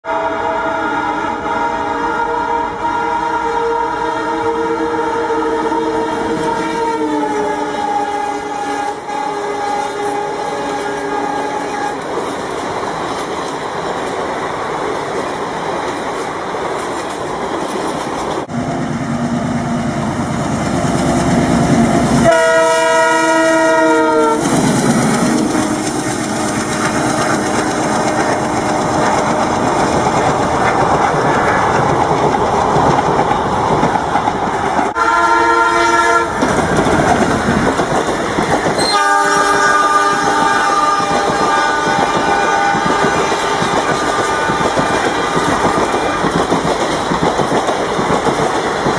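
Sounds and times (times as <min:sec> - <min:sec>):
locomotive horn blowing: 0:00.0 - 0:12.1, 0:22.2 - 0:25.8, 0:35.0 - 0:36.4, 0:38.8 - 0:46.3
train rumble and wheel clatter: 0:01.5 - 0:48.9.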